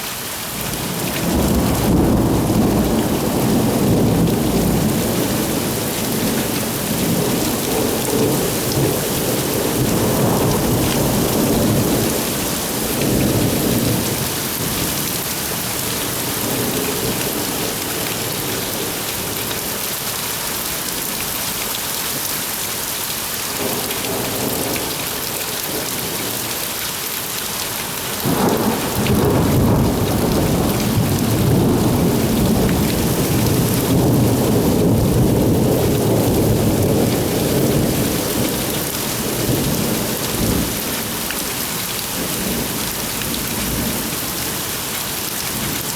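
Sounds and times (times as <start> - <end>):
heavy rain falling: 0.0 - 45.9
rolling thunder: 28.2 - 40.8.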